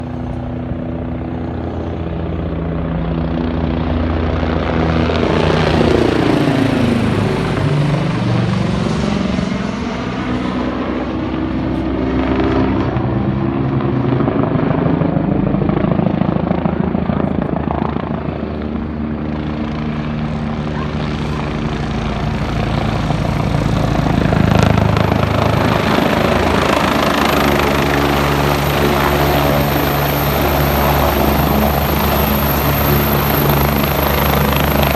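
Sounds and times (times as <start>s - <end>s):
helicopter rotor beat: 0.0s - 34.9s
helicopter turbine whine: 0.0s - 34.9s.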